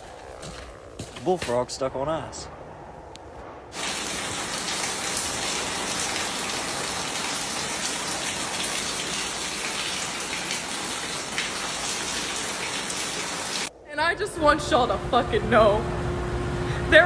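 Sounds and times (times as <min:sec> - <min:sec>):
water spraying from burst pipe: 0:03.7 - 0:13.7.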